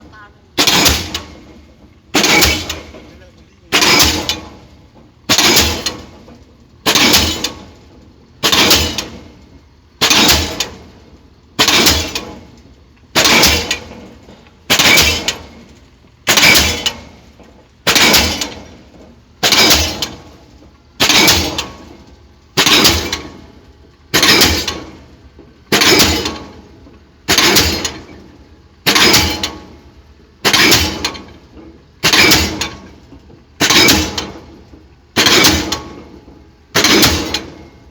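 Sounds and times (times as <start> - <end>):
pile driver hammer striking: 0.6 - 3.1, 3.7 - 4.6, 5.3 - 6.1, 6.8 - 7.6, 8.4 - 9.3, 10.0 - 10.9, 11.6 - 12.4, 13.2 - 14.0, 14.7 - 15.6, 16.3 - 17.2, 17.8 - 18.8, 19.4 - 20.4, 21.0 - 22.0, 22.6 - 23.4, 24.1 - 25.0, 25.7 - 26.6, 27.3 - 28.2, 28.9 - 29.8, 30.4 - 31.3, 32.0 - 33.0, 33.6 - 34.6, 35.2 - 37.8.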